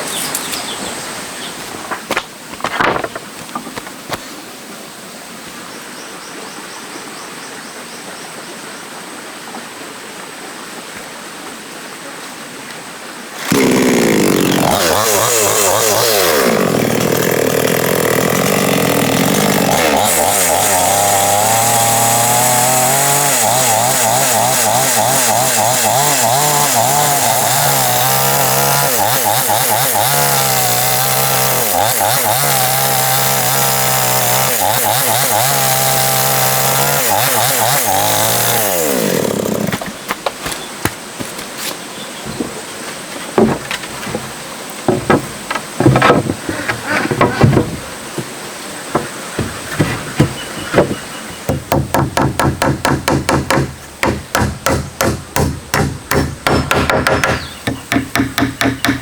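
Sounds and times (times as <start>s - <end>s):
faint outdoor hiss: 0.0s - 13.5s, 39.6s - 59.0s
chainsaw running: 13.4s - 40.6s.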